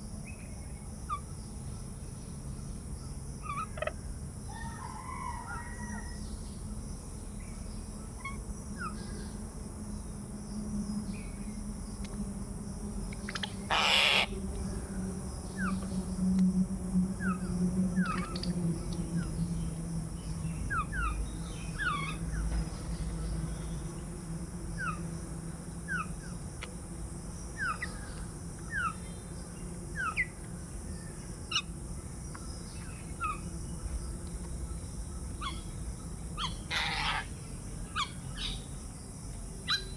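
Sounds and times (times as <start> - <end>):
doves cooing: 13.4 - 14.3, 21.8 - 24.2
small birds chirping: 20.6 - 24.2.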